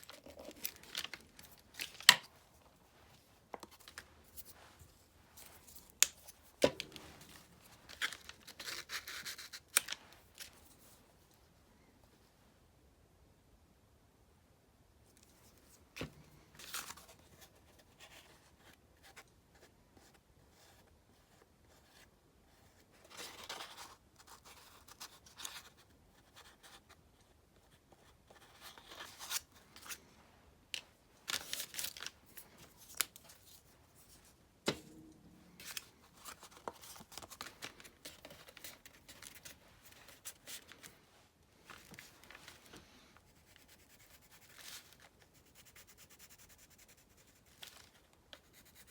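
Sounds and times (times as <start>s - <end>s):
paper rustling: 0.0s - 10.8s, 30.7s - 41.0s.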